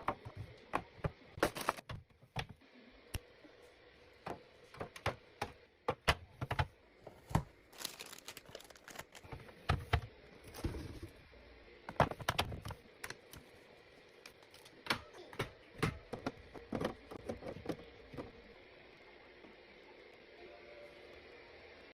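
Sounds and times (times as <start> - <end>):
packaging crinkling: 1.4 - 1.9, 7.7 - 9.3.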